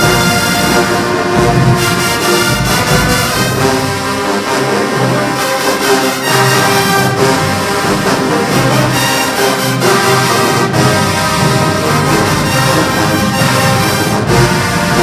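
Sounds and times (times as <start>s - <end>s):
drum hits: 0.0s - 4.4s
brass chords: 0.0s - 15.0s
marching band playing: 0.0s - 15.0s.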